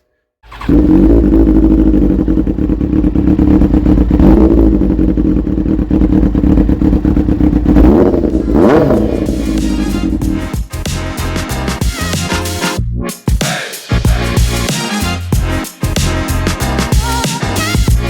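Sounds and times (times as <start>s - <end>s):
motorcycle engine revving: 0.4s - 12.6s.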